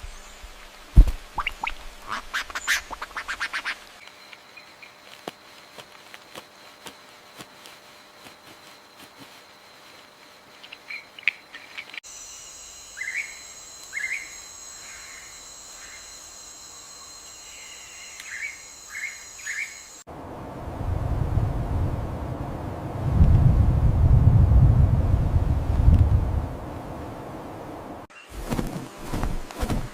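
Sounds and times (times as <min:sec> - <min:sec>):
birds chirping: 0:02.1 - 0:12.0, 0:12.9 - 0:20.0
high insect drone: 0:03.8 - 0:20.1.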